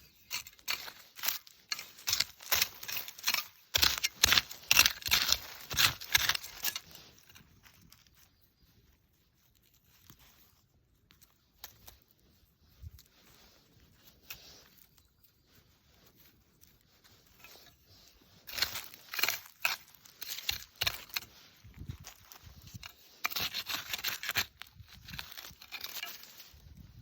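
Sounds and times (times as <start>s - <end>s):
scraping and rustling strokes: 0.0s - 27.0s.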